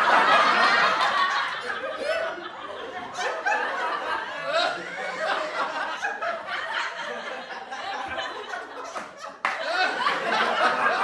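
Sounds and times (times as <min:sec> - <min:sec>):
people laughing: 0:00.0 - 0:11.0.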